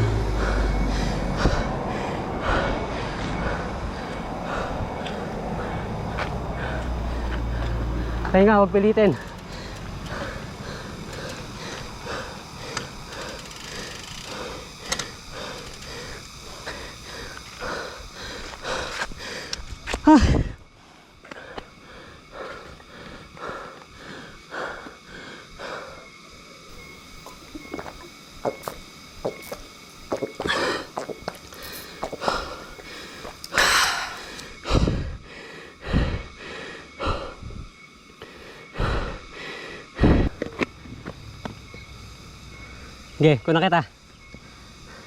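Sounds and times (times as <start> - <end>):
person breathing hard: 0.0 - 8.3, 9.2 - 26.2, 30.4 - 40.4.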